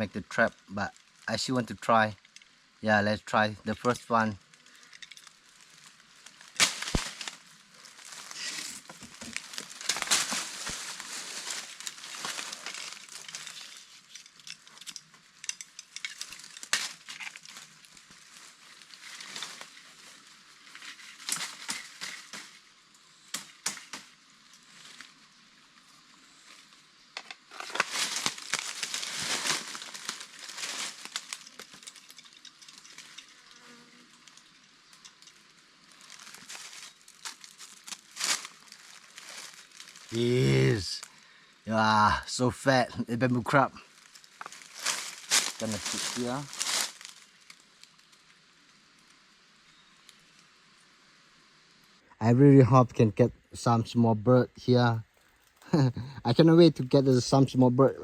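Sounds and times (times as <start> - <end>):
dry leaves and twigs rustling: 0.0 - 42.2, 43.4 - 52.1, 55.0 - 55.9
sharp twig snaps: 6.6 - 7.4.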